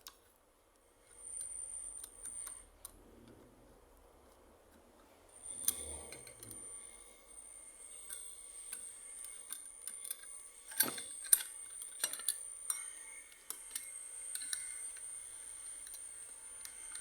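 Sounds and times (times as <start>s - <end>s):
small parts clicking and tapping: 7.9s - 17.0s.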